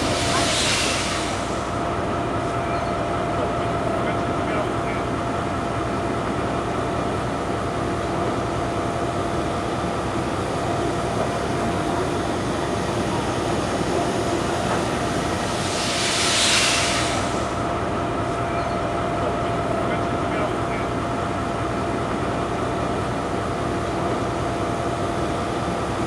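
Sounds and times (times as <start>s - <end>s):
loud hiss burst: 0.0s - 1.8s, 14.5s - 17.6s
locomotive running: 0.0s - 26.0s.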